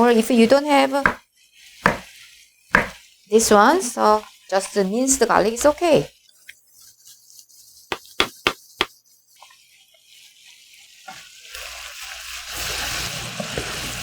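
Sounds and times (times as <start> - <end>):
meat sizzling in a frying pan: 0.0 - 14.0
quick sharp taps: 2.8 - 3.0.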